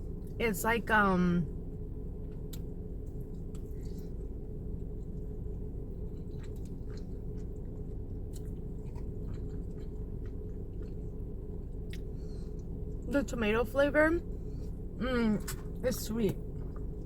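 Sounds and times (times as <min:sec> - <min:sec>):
steady low rumble: 0:00.0 - 0:17.0
person chewing food: 0:02.2 - 0:13.1, 0:16.4 - 0:17.0.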